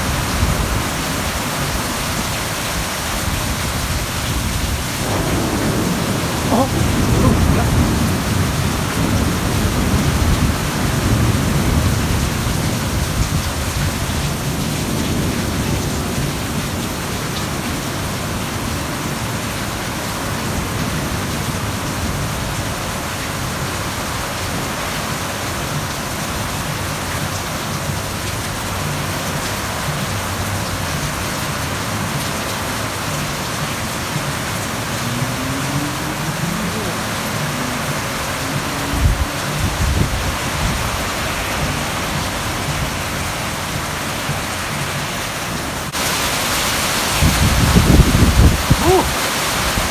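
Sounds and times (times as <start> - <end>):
heavy rain pouring: 0.0 - 49.9
low rumble of thunder: 3.2 - 19.5, 47.2 - 49.0.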